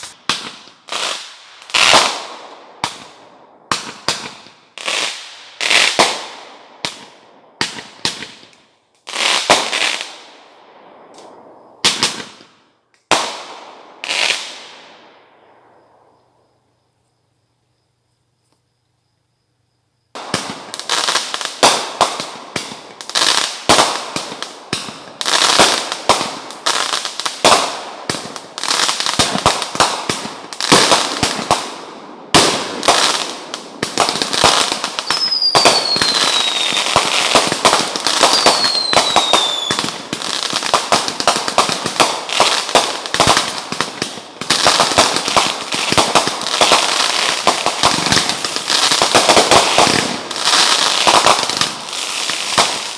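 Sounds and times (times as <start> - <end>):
falling firework whistles: 0.0 - 3.1, 32.3 - 43.6
fireworks bangs and crackling: 0.0 - 16.1, 20.1 - 52.9.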